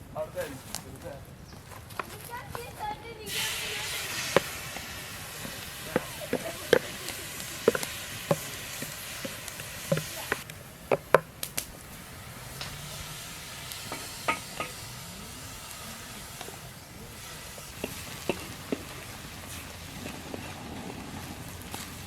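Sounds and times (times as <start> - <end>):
food sizzling in a pan: 2.5 - 22.0
utensil knocking against pan: 4.2 - 11.3, 17.8 - 18.9.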